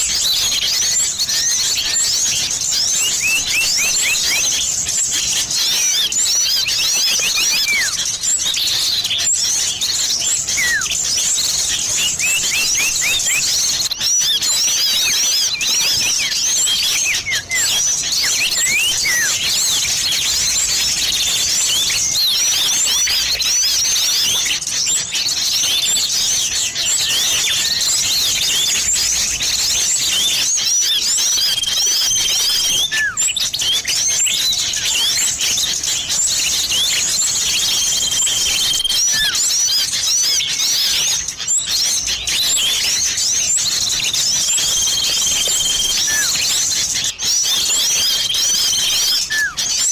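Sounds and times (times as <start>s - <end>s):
small birds chirping: 0.0s - 49.9s
falling bird whistles: 2.9s - 4.7s, 5.8s - 8.1s, 9.8s - 24.4s, 30.2s - 35.6s, 36.5s - 41.2s, 41.8s - 49.9s.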